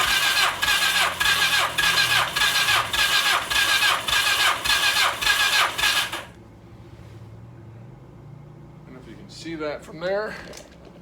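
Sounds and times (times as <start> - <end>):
electric starter cranking engine: 0.0 - 6.4.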